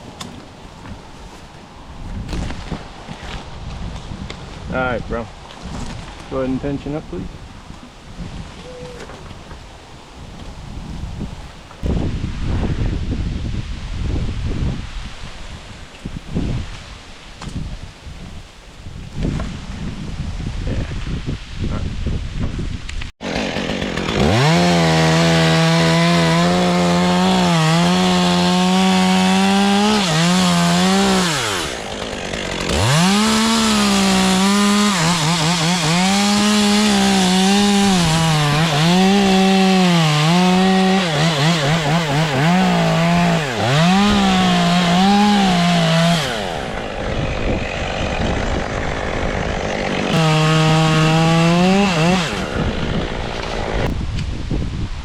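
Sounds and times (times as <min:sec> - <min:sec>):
chainsaw cutting wood: 0:23.2 - 0:54.4.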